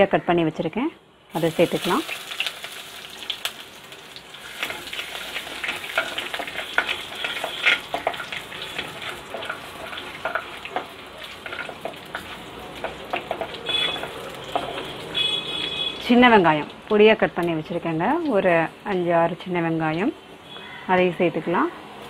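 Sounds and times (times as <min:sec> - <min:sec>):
garlic sizzling in oil: 0:01.3 - 0:20.1
wooden spatula scraping clay pot: 0:04.6 - 0:15.0.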